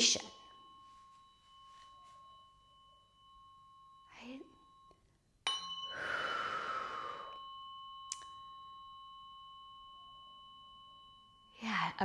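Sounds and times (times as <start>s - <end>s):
tuning fork ringing: 0.0s - 12.0s
breathy exhale: 5.9s - 7.4s.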